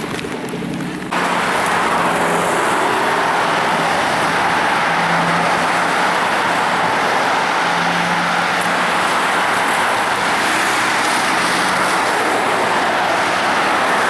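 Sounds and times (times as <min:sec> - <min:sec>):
car and road noise: 0:00.0 - 0:14.0.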